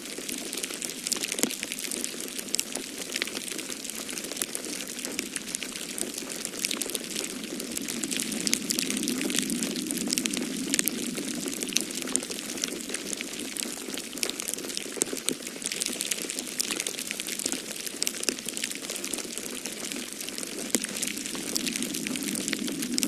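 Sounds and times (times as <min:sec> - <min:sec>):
wood fire crackling and popping: 0:00.2 - 0:23.0
low rush of wind: 0:04.8 - 0:15.0, 0:18.6 - 0:23.0.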